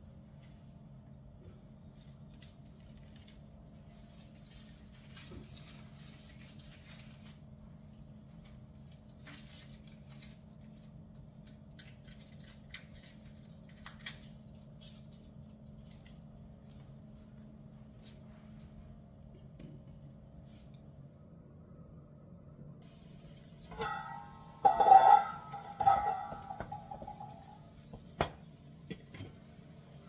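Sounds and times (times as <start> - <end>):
steady low hum: 16.8 - 30.0.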